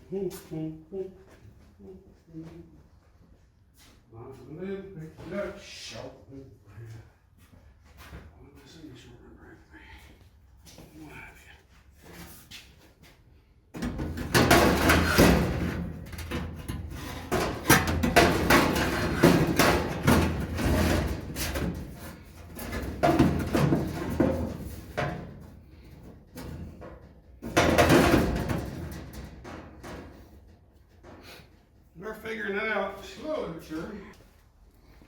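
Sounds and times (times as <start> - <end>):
sheet metal knocking and clattering: 13.8 - 31.3.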